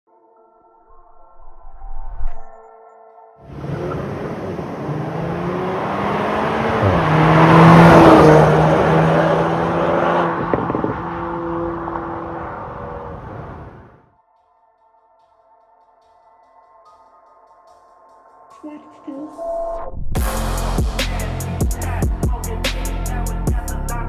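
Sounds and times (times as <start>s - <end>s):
car driving by: 3.5s - 14.0s.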